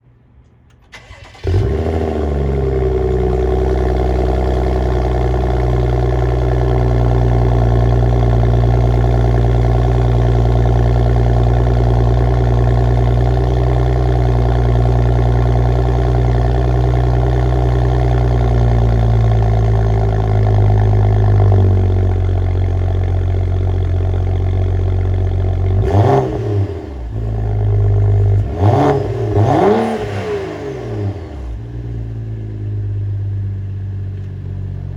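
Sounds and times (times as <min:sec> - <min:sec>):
car engine cold start and idling: 0:00.4 - 0:34.9
engine rev blip: 0:28.0 - 0:31.7.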